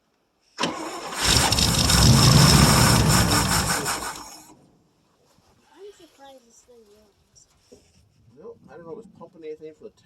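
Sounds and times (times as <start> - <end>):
truck engine cranking and running: 0.6 - 4.5.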